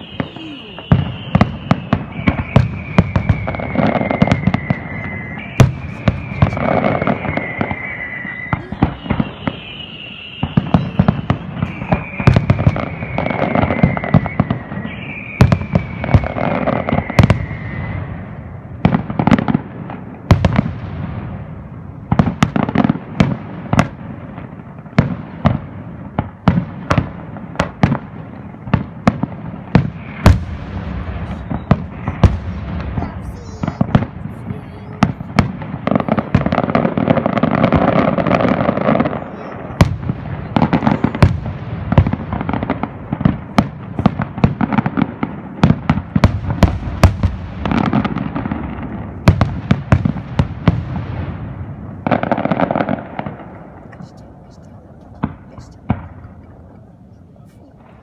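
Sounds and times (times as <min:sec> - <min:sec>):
falling firework whistle: 0:00.0 - 0:19.6, 0:29.8 - 0:45.0
fireworks bangs and cracks: 0:00.0 - 0:56.8.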